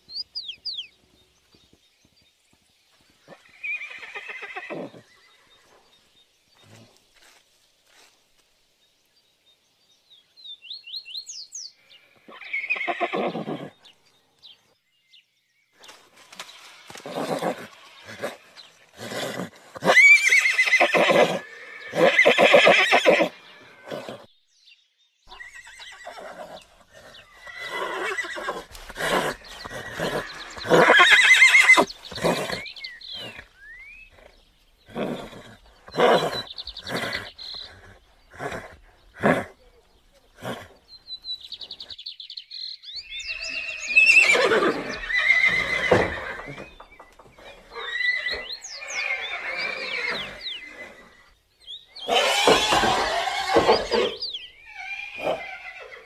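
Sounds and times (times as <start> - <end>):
horses neighing: 3.3 - 5.6, 12.1 - 13.8, 16.3 - 24.3, 25.3 - 40.8, 43.2 - 51.3, 52.0 - 56.0.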